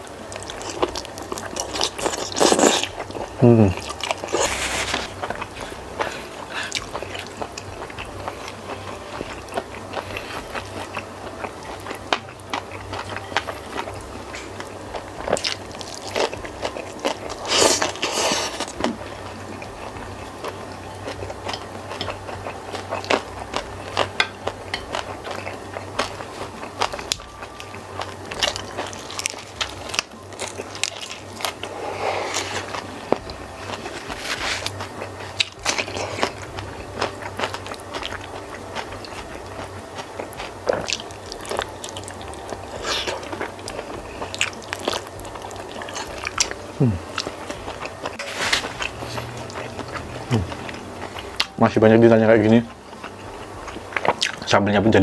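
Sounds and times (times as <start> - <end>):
person chewing crunchy food: 0.0 - 54.6.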